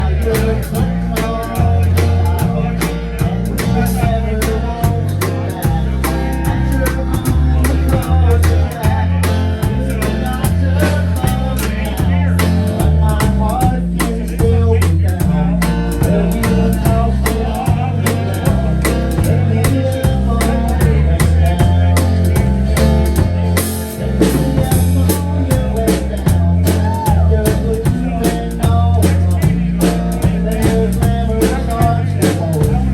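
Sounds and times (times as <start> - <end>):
bass line: 0.0 - 32.9
drum kit beat: 0.0 - 32.9
guitar: 0.0 - 32.9.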